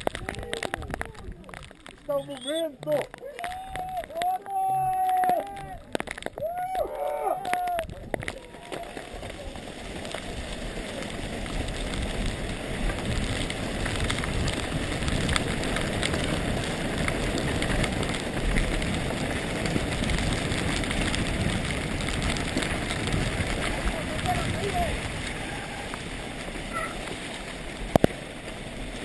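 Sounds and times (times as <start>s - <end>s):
wind rush on microphone: 0.0s - 1.9s, 3.4s - 29.0s
bike tyre rumble: 0.0s - 29.0s.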